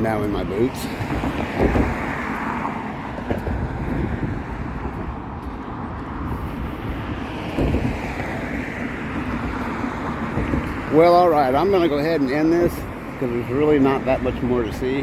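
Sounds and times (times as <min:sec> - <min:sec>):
passing vehicle traffic: 0:00.0 - 0:15.0
wind buffeting microphone: 0:00.0 - 0:15.0.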